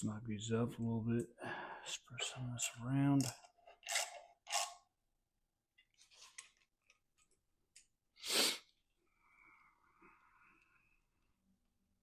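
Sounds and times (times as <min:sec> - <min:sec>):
clicks and scrapes of hand tools: 0:03.1 - 0:04.9.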